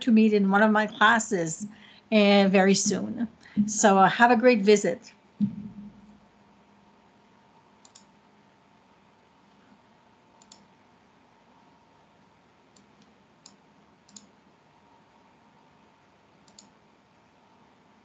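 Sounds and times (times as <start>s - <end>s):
faint steady hum: 0.0s - 18.0s
soft sharp clicks: 7.8s - 8.1s, 10.4s - 10.7s, 12.8s - 14.3s, 16.4s - 16.8s.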